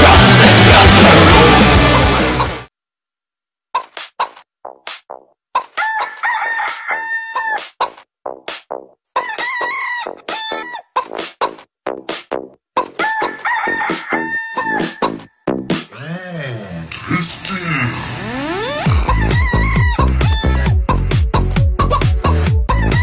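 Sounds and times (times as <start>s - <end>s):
chicken clucking: 3.8s - 4.4s, 5.6s - 8.1s, 9.2s - 11.7s
rooster crowing: 5.8s - 7.6s, 9.2s - 10.8s, 13.0s - 15.2s, 19.0s - 20.7s.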